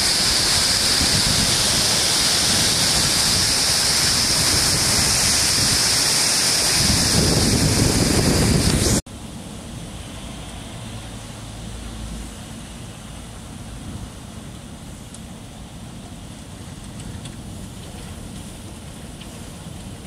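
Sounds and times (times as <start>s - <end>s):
wind buffeting microphone: 0.0s - 9.0s
heavy rain pouring: 0.0s - 20.0s.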